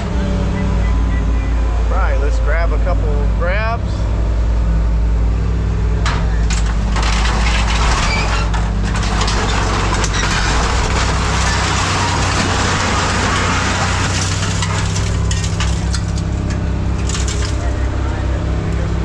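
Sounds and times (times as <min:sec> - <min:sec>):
heavy machine engine drone: 0:00.0 - 0:19.0
scrap metal crunching: 0:05.9 - 0:19.0.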